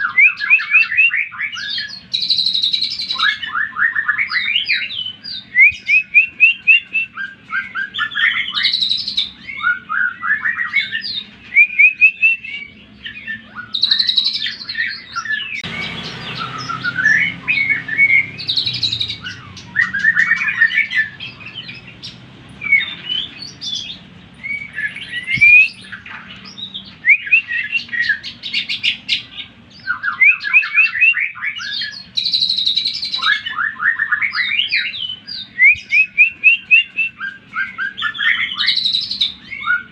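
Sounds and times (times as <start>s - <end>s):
bird chattering and trilling song: 0.0s - 39.9s.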